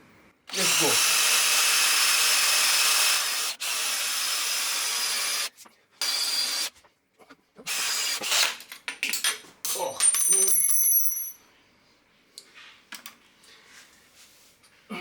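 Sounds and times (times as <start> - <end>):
electric drill drilling: 0.5 - 6.7.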